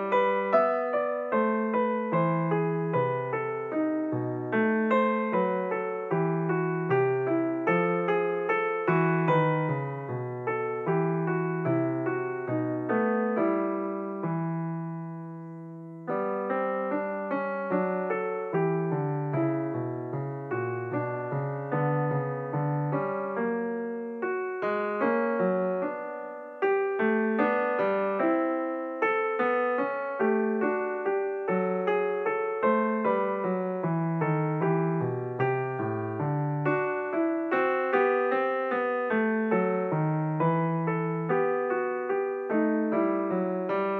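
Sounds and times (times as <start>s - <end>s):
piano music: 0.0s - 43.9s.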